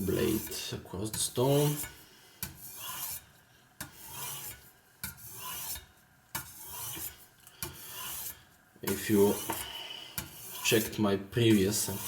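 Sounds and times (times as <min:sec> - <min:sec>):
knife scraping on sharpening stone: 0:02.6 - 0:12.0.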